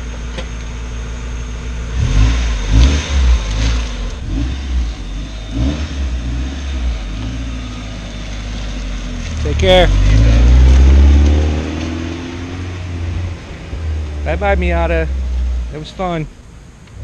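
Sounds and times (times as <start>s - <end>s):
car engine revving: 1.0s - 17.0s.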